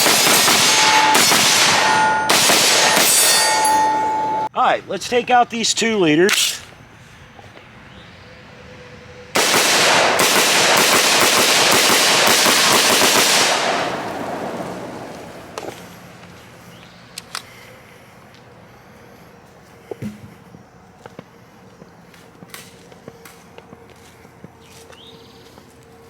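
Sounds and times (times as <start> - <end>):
rapid gunshots: 0.0 - 3.5, 9.4 - 15.1.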